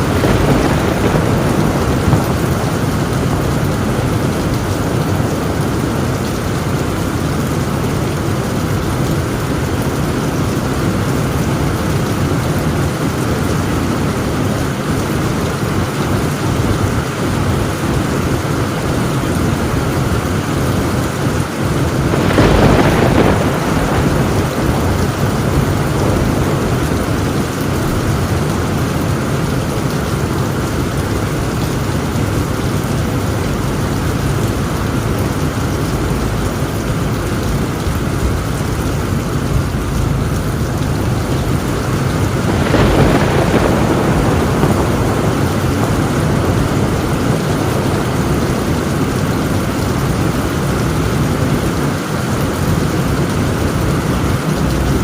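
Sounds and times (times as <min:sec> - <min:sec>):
thunderclap: 0:00.0 - 0:07.8, 0:19.3 - 0:51.7
heavy rain on a tin roof: 0:00.0 - 0:55.0.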